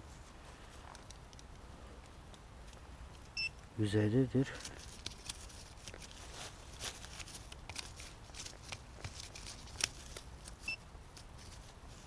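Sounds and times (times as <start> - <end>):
scraping in leaf litter: 4.7 - 8.5.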